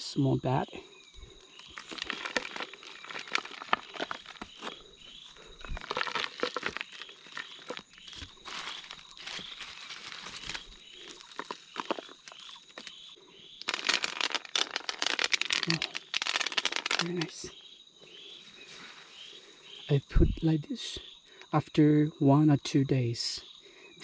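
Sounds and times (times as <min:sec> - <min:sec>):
dry leaves and sticks rustling: 0:01.4 - 0:17.5.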